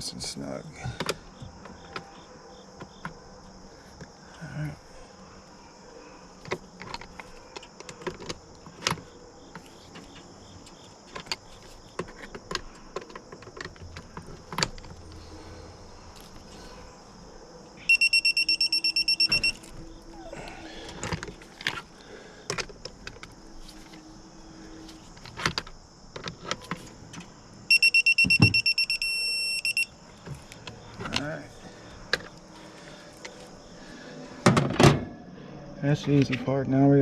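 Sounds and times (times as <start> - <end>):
high-pitched electronic beeps: 17.8 - 19.6, 27.7 - 29.9.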